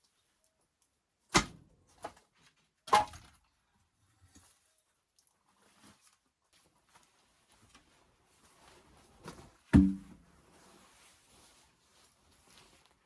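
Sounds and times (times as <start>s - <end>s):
loud thuds: 9.8s - 10.2s.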